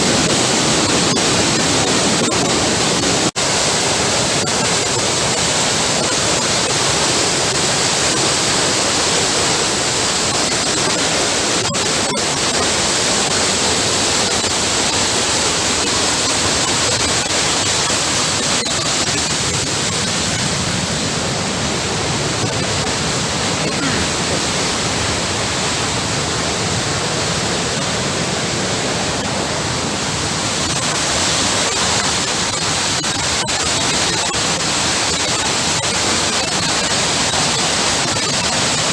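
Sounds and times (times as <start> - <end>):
river water rushing: 19.1 - 33.0.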